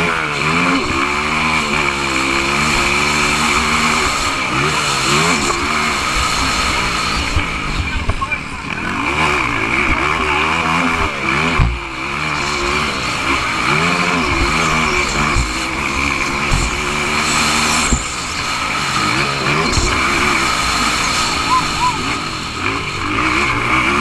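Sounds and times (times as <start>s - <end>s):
motorcycle engine revving: 0.0s - 24.0s
heavy thumps: 15.2s - 18.2s.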